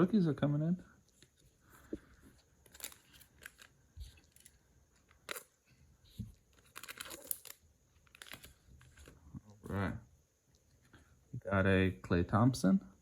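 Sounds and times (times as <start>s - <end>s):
plastic wrapper tearing and crinkling: 2.6s - 5.5s, 6.5s - 9.2s.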